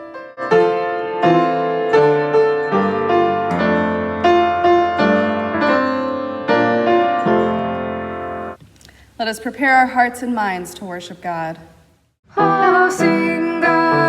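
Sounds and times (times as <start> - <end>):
piano playing slow chords: 0.0 - 8.6.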